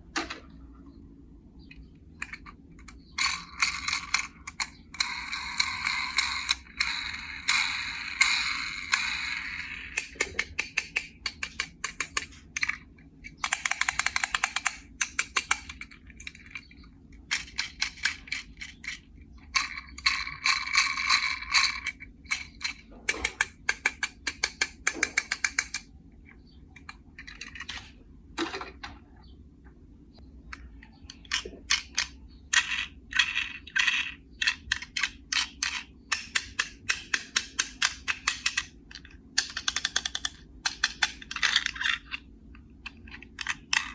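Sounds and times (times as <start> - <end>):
small hard clicks and clattering: 30.5 - 43.9.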